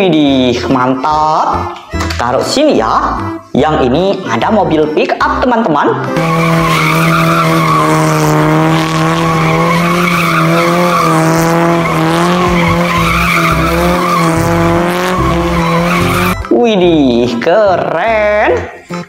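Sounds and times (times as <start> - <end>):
engine droning at steady revs: 6.2 - 16.4.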